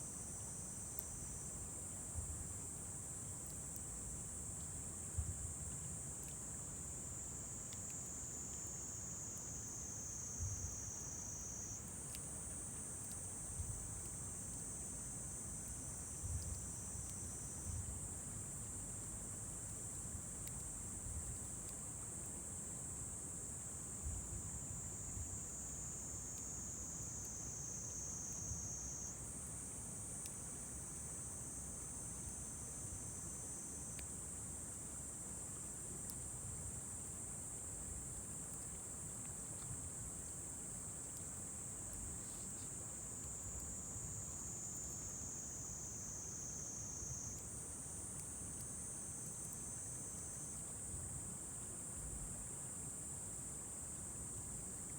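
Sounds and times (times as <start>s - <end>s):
faint ticks: 0.8s - 1.2s, 3.3s - 23.0s, 26.1s - 32.4s, 33.0s - 34.8s, 35.5s - 36.3s, 38.1s - 51.0s.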